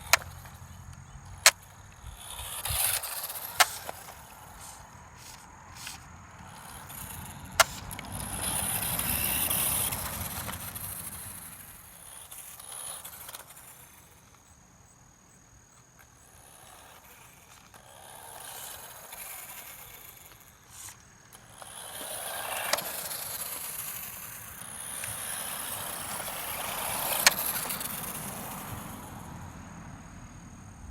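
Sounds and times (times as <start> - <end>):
sharp clicks: 0.0 - 6.0
rc car high-pitched motor: 0.0 - 29.6.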